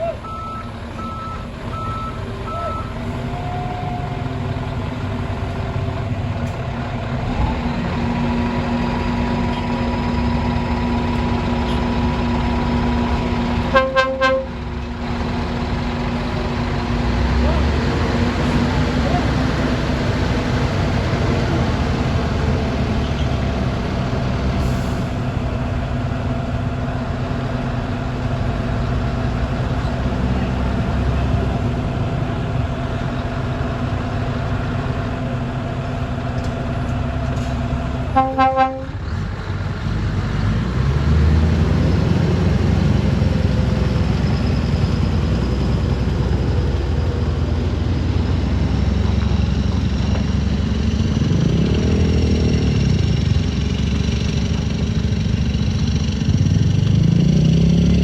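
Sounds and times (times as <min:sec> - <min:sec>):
truck diesel engine running: 0:00.0 - 0:58.0
truck horn toots: 0:13.6 - 0:14.6, 0:38.1 - 0:39.0.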